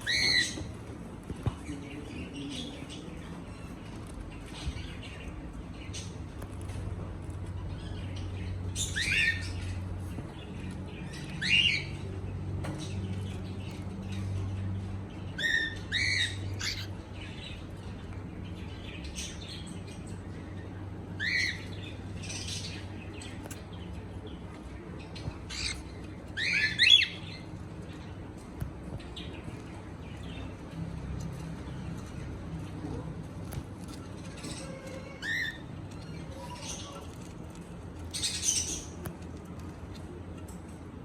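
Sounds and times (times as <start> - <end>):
cockatiel chirping: 0.0 - 0.7, 15.4 - 16.9, 25.5 - 27.2.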